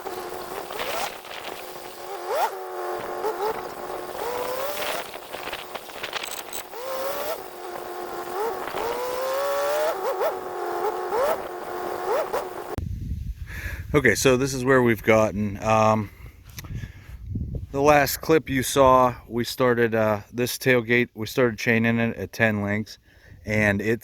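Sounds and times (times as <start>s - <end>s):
engine revving: 0.0s - 12.8s.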